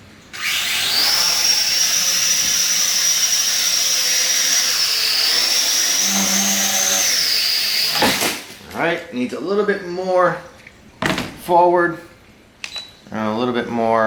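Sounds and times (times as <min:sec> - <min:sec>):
drone rotors whining: 0:00.4 - 0:08.0.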